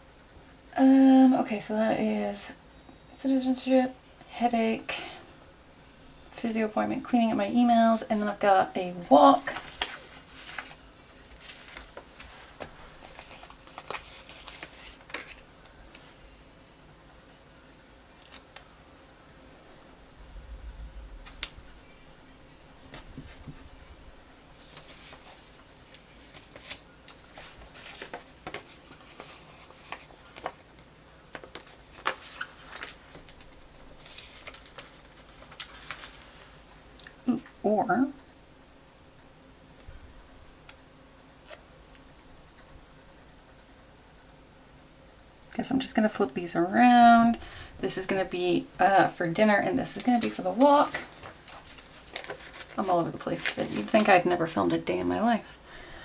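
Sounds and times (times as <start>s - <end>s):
paper rustling: 9.2s - 16.2s, 24.5s - 36.8s, 49.1s - 55.6s.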